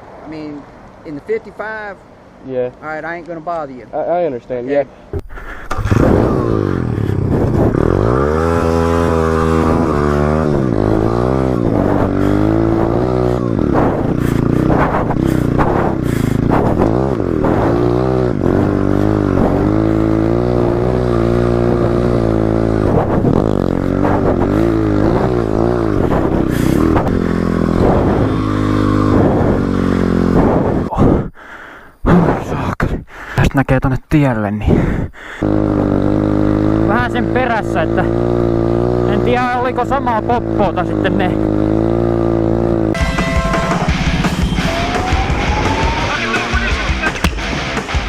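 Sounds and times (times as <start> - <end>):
motorcycle engine revving: 5.2 - 30.9, 35.4 - 48.0.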